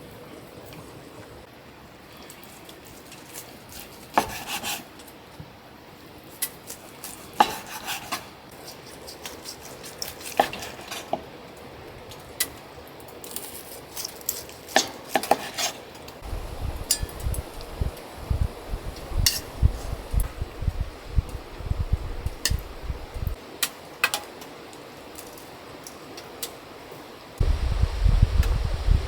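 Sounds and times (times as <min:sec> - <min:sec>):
steady background hiss: 0:14.5 - 0:29.0.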